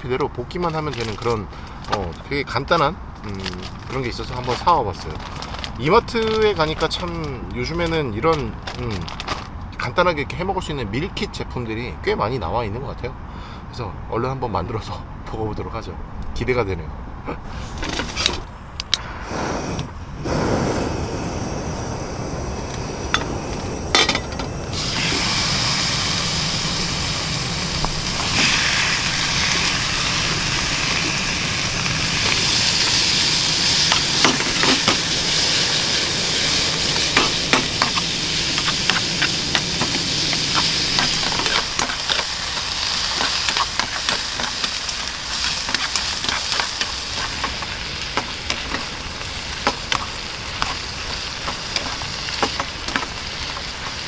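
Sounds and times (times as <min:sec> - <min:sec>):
stir-fry sizzling in hot pan: 0:21.9 - 0:54.0
utensil tapping and scraping: 0:36.9 - 0:48.9, 0:49.6 - 0:54.0.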